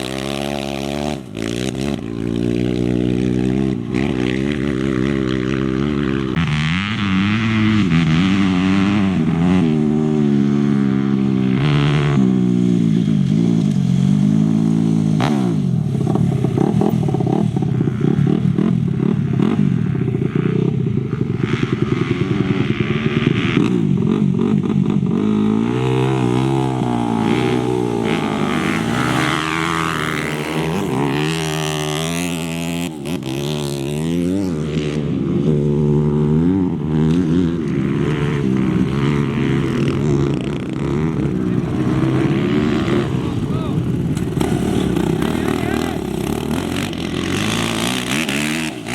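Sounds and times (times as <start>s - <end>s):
motorcycle and quad engines revving: 0.0s - 48.9s.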